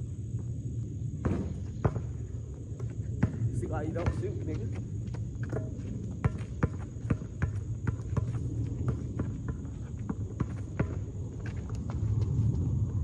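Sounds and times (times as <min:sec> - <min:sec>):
steady low rumble: 0:00.0 - 0:13.0
basketball bouncing: 0:01.2 - 0:02.2, 0:02.8 - 0:11.6.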